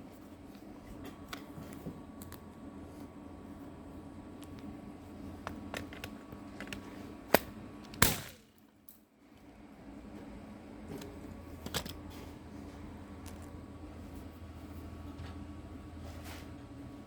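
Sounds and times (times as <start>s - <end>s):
nail gun firing into rock: 8.0s - 8.5s.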